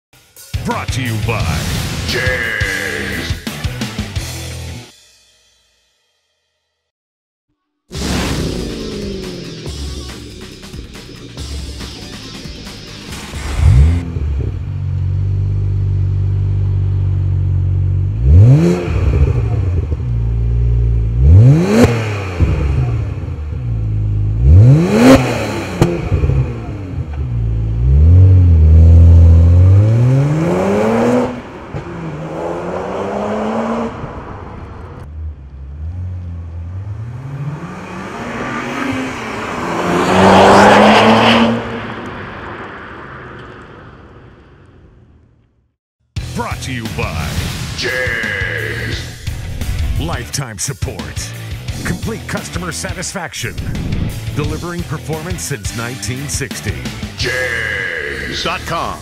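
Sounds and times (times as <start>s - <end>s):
car accelerating: 8.0s - 45.3s
car engine idling and revving: 8.0s - 45.7s, 48.5s - 57.3s.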